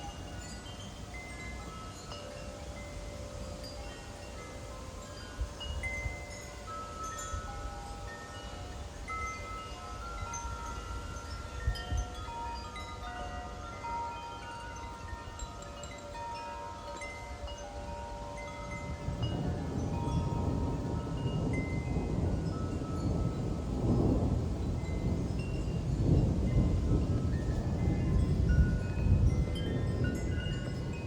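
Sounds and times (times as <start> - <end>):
wind chimes ringing: 0.0 - 31.0
wind rumble on microphone: 0.0 - 31.0.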